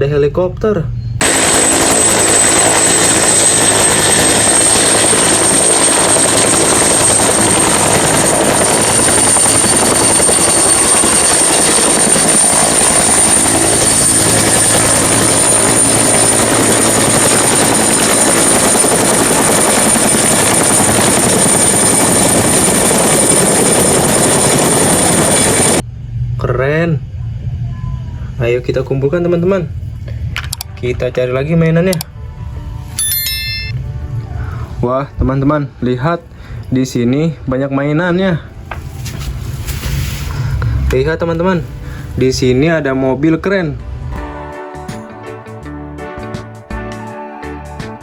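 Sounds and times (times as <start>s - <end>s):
helicopter rotor and engine: 1.2s - 26.5s, 33.0s - 33.8s.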